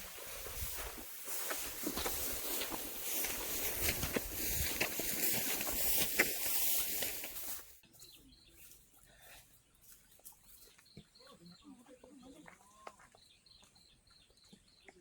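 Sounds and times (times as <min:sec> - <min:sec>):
dry stalks rustling and crackling: 0:00.0 - 0:07.9.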